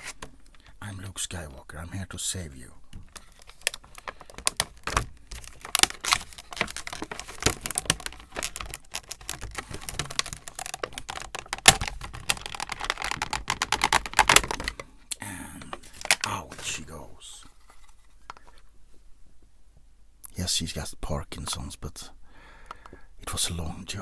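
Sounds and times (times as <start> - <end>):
cardboard and plastic packaging crackling: 0.0 - 0.6, 2.9 - 18.7.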